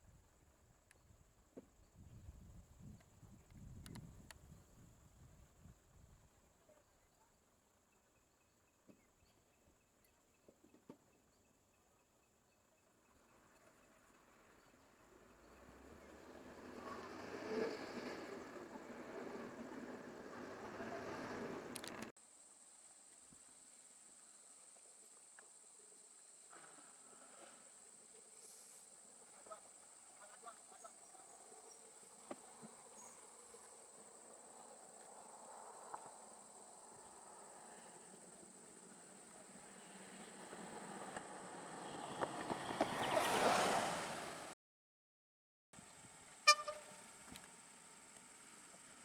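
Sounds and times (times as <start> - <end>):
insect chorus drone: 0.0 - 43.4, 45.9 - 49.0
vehicle passing: 15.3 - 22.1, 38.9 - 44.6
vehicle horn toot: 46.4 - 47.1.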